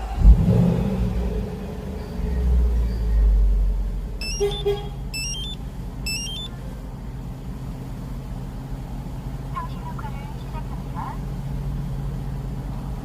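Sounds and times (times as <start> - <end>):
car engine idling: 0.0 - 13.0
brief low beeps: 4.2 - 6.5
electronic chime tones: 4.2 - 6.5.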